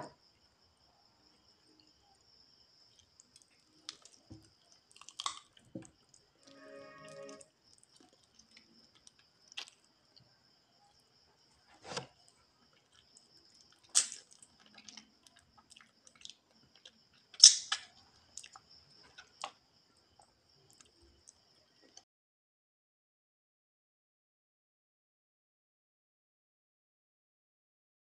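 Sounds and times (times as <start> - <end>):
person chewing and sucking bones: 2.9 - 6.4, 7.7 - 9.9, 12.7 - 19.6.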